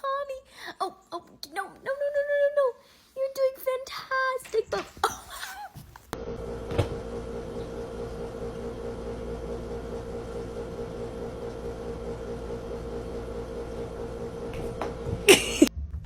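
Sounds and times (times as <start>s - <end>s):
steady mechanical hum: 6.1s - 15.7s.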